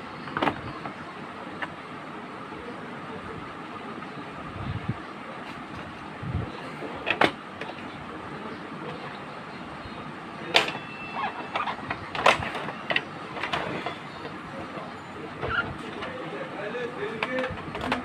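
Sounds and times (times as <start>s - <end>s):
plastic clicks and knocks: 17.2s - 18.0s.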